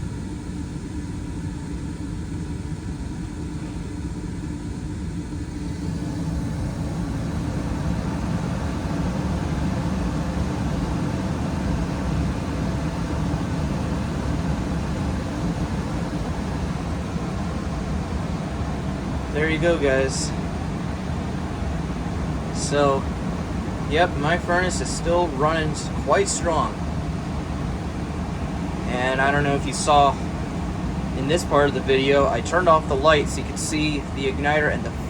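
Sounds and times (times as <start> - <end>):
furnace burner rushing: 0.0 - 35.0
furnace inducer motor hum: 0.0 - 35.0.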